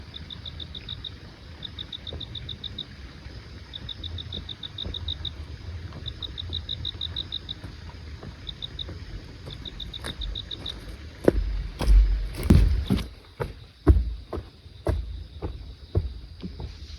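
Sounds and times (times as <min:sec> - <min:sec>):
insect chirping in pulsed trills: 0:00.0 - 0:16.9
loud low thumps: 0:11.3 - 0:13.3.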